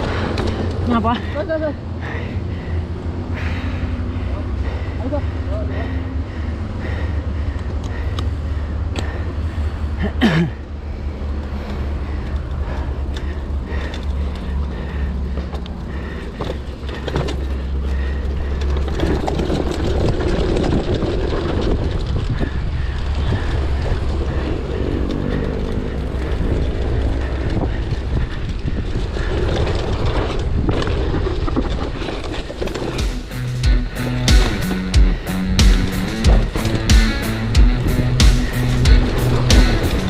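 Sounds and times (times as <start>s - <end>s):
bike rattling and knocking: 0.0s - 40.0s
bike tyre noise: 0.0s - 40.0s
wind rumble on microphone: 17.9s - 33.0s.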